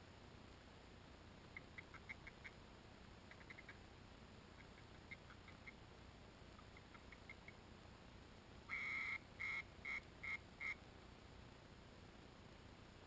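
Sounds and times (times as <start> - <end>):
muffled microphone hiss: 0.0 - 13.0
distant small birds chirping: 1.4 - 10.9.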